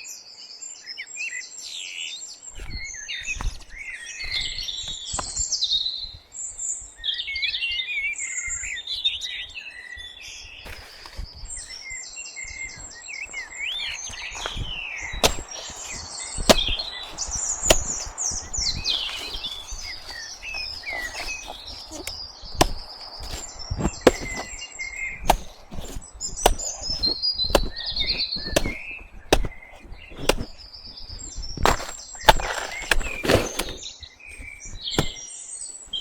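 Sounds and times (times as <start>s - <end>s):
small birds chirping: 1.5s - 36.0s
blade chopping banana stems: 2.6s - 5.6s, 10.6s - 36.0s.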